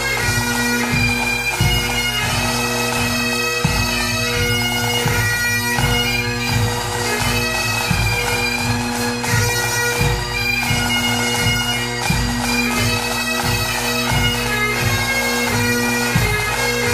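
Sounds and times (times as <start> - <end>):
bagpipe music: 0.0 - 16.9
drum beating: 0.0 - 16.9.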